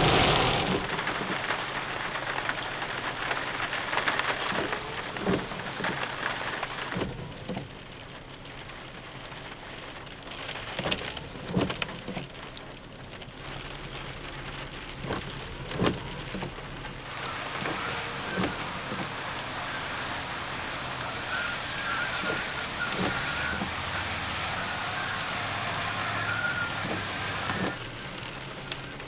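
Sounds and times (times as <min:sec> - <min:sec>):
sharp raindrop hits: 0:00.0 - 0:07.2
heavy rain falling: 0:00.0 - 0:29.0.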